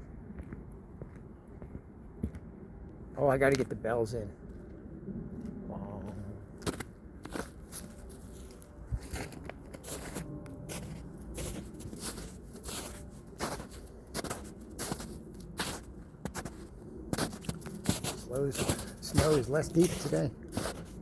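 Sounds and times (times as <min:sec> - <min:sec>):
footsteps crunching through snow: 0:06.1 - 0:21.0.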